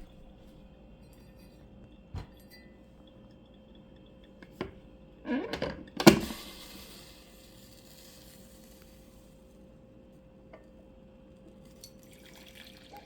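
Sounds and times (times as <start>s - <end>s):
brief hiss: 6.2s - 9.1s.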